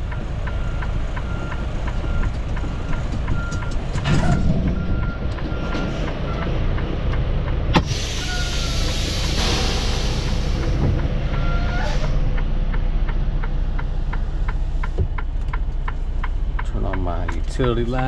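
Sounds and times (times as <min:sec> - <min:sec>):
diesel engine running: 0:00.0 - 0:18.0
even ticking: 0:12.2 - 0:18.0.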